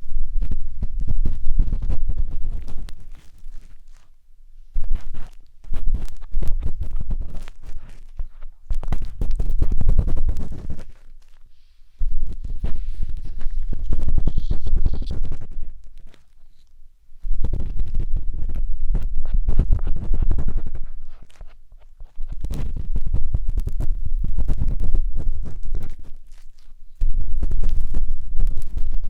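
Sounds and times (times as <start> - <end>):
matchstick scratching in microphone: 0.4 - 29.0.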